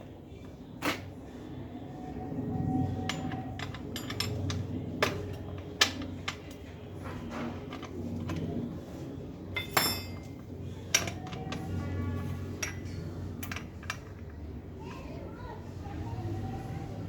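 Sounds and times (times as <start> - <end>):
steady low hum: 0.0 - 17.0
metal tools clinking: 3.0 - 6.6, 9.5 - 11.8.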